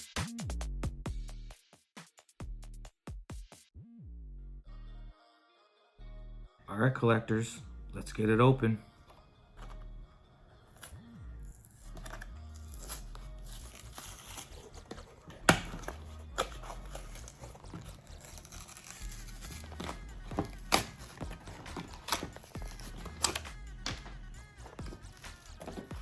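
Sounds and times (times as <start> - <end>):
plastic packaging being torn open: 9.1 - 9.9, 10.6 - 11.0, 11.6 - 26.0.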